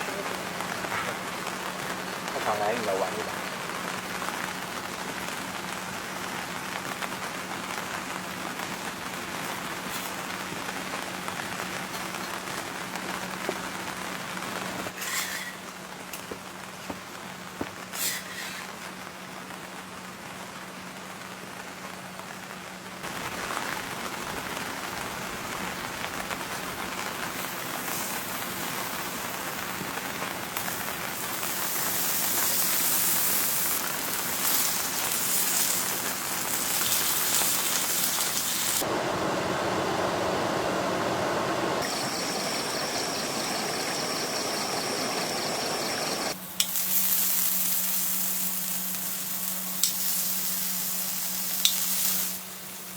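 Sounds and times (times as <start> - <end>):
rain hiss: 0.0 - 16.0, 17.8 - 52.9
faint steady hum: 30.5 - 52.9.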